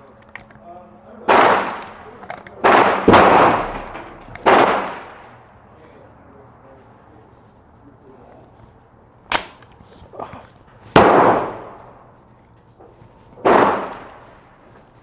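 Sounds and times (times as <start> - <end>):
airsoft rifle shots cracking: 1.3 - 5.5, 9.3 - 9.8, 10.9 - 12.2, 13.4 - 14.5.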